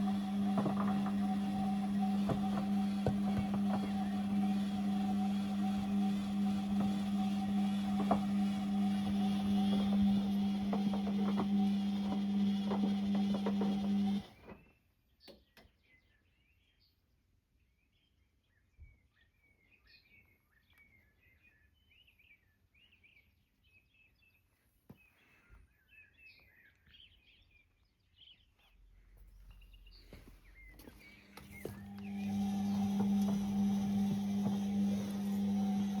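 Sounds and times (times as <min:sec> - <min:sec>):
washing machine humming: 0:00.0 - 0:14.4, 0:30.8 - 0:36.0.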